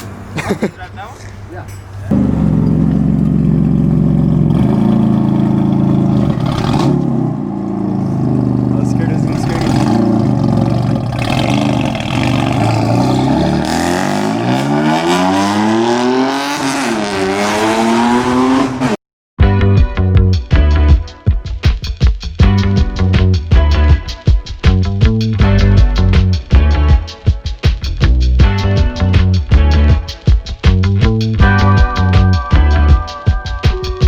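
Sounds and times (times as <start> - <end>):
car engine accelerating: 1.9 - 19.0
funk music with bass and guitar: 2.0 - 13.7, 19.4 - 34.0.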